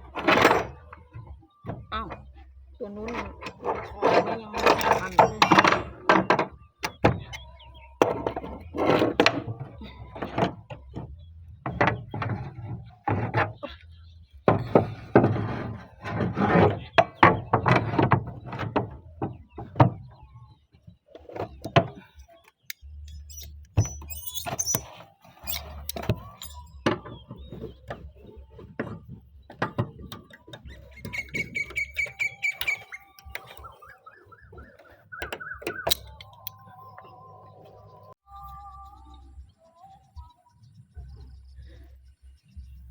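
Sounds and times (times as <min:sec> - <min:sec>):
knocks and clatter on roof sheets: 0:08.0 - 0:22.2, 0:26.0 - 0:32.4.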